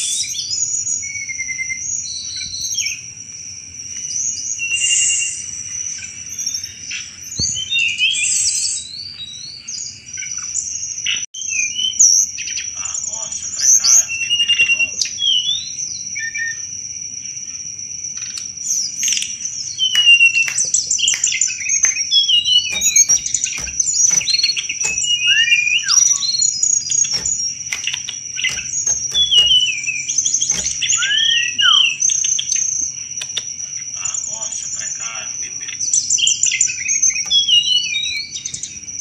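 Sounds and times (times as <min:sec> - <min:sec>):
songbird singing chattering song: 0:18.2 - 0:33.9.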